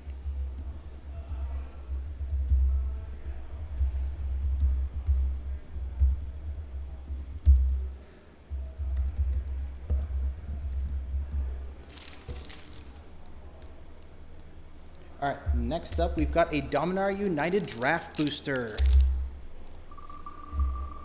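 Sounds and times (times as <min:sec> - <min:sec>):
computer keyboard typing: 0:00.1 - 0:07.9, 0:08.5 - 0:21.0
short rustle: 0:11.8 - 0:13.0.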